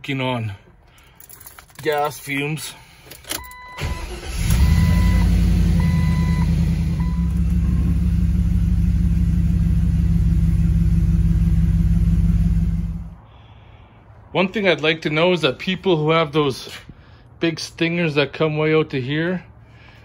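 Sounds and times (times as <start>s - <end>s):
engine starting and idling: 3.3s - 13.2s.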